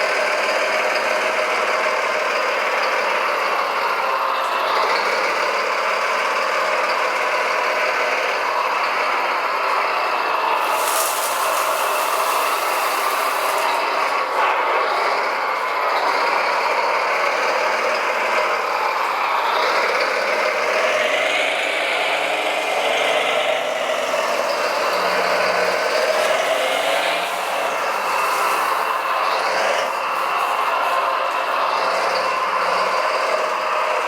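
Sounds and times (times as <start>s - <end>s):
whining electric motors: 7.7s - 21.8s, 22.4s - 34.0s.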